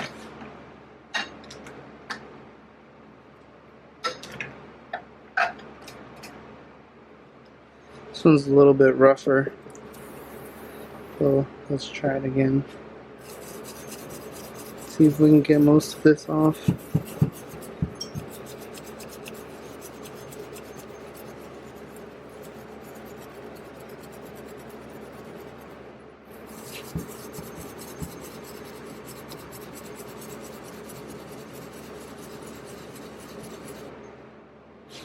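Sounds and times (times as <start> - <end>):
wire brush scratching metal: 13.2 - 33.9.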